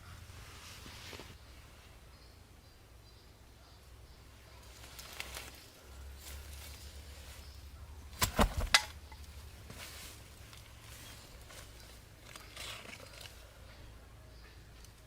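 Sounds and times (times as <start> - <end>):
faint rustling: 0.0 - 2.0, 4.6 - 13.9.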